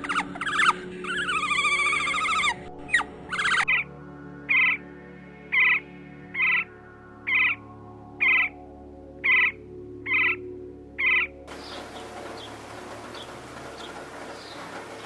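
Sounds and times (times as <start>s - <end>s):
animal calling: 0.0s - 3.8s, 4.5s - 4.8s, 5.5s - 5.8s, 6.4s - 6.7s, 7.3s - 7.6s, 8.2s - 8.5s, 9.2s - 10.4s, 11.0s - 15.0s
faint high bird chirps: 0.0s - 3.9s, 4.5s - 4.8s, 5.5s - 6.7s, 7.3s - 7.6s, 8.2s - 8.5s, 9.2s - 10.4s, 11.0s - 15.0s
outdoor hiss: 11.5s - 15.0s.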